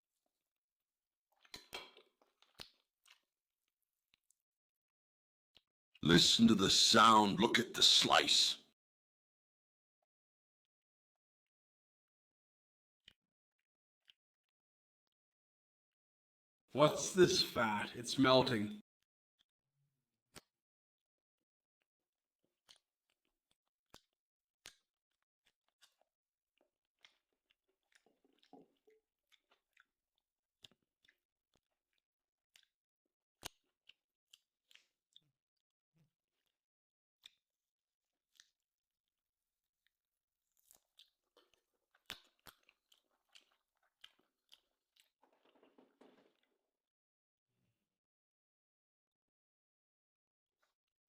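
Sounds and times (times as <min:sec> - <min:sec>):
chewing wet mouth sounds: 0:01.3 - 0:03.4, 0:22.6 - 0:37.6, 0:38.2 - 0:38.7, 0:39.8 - 0:46.5.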